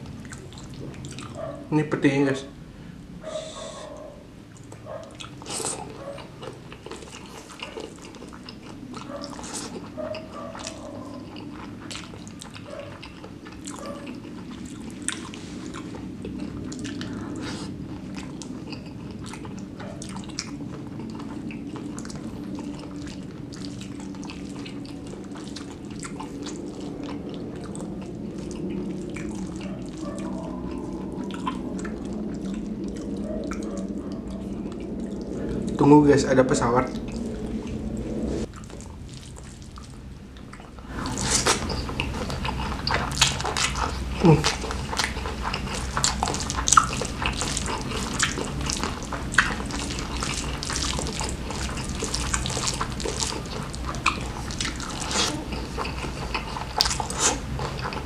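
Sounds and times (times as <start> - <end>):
chewing with wet mouth clicks: 0.0 - 1.7, 3.6 - 35.9, 38.4 - 58.0
airplane drone overhead: 0.0 - 58.0.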